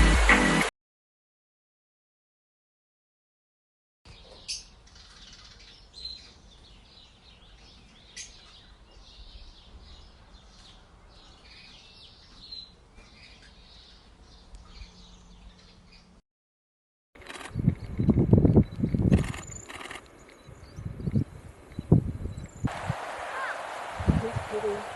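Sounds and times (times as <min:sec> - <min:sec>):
small birds chirping: 0:04.1 - 0:16.2, 0:17.5 - 0:24.9.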